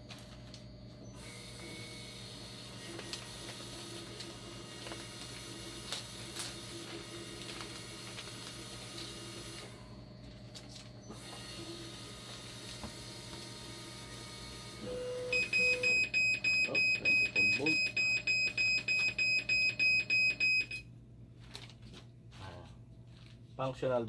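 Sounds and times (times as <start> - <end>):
dialysis machine hum: 0.0 - 21.3.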